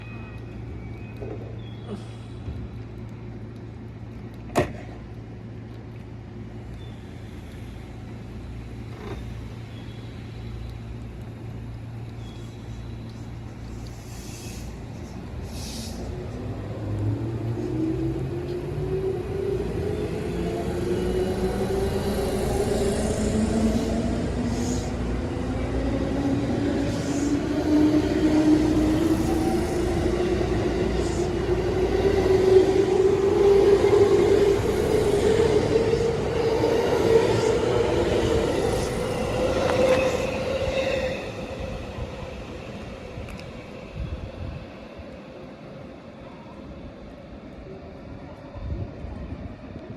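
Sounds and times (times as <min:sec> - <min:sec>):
electric train humming: 0:06.9 - 0:47.1
brief hissing or clicking: 0:15.5 - 0:16.1.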